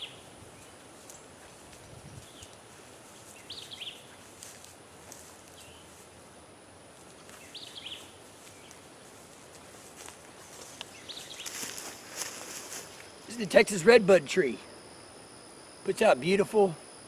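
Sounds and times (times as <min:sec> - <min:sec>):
outdoor background hiss: 0:00.0 - 0:17.0
bird calling: 0:07.4 - 0:08.8.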